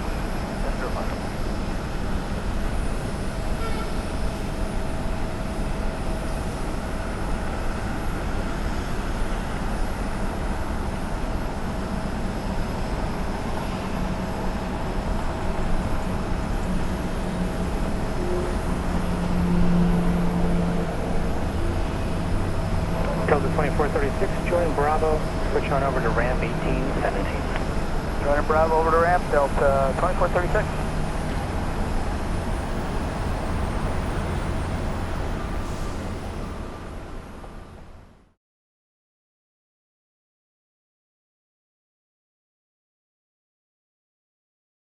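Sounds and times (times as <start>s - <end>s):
jet engines whining: 14.7s - 35.8s
low hum: 16.9s - 32.2s.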